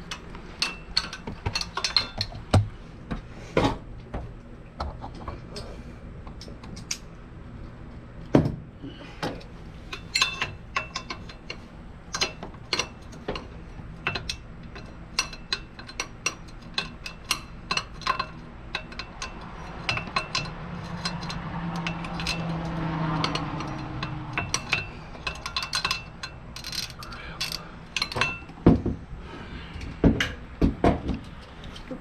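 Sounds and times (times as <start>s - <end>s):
ratchet wrench clicking: 14.0s - 28.3s.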